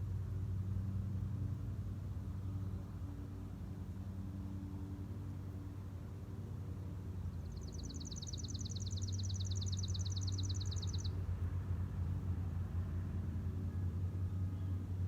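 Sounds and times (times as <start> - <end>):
songbird trill: 7.1 - 11.3.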